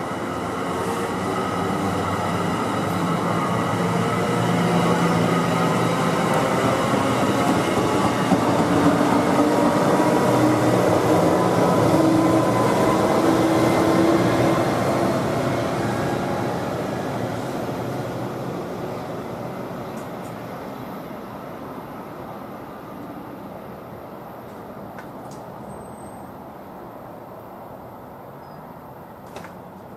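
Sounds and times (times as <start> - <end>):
diesel locomotive passing: 0.0 - 28.9
train passing on rails: 0.0 - 29.9.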